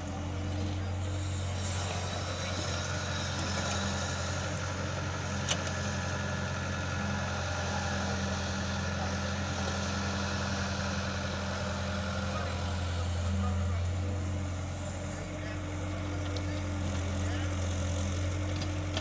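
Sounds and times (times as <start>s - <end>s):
tractor engine idling: 0.0s - 19.0s.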